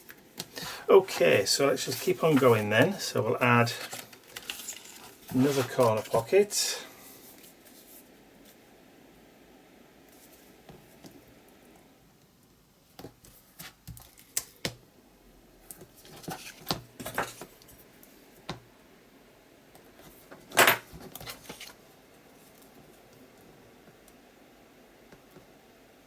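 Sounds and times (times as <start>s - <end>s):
paper and tape rustling: 0.1s - 3.0s, 3.6s - 6.5s.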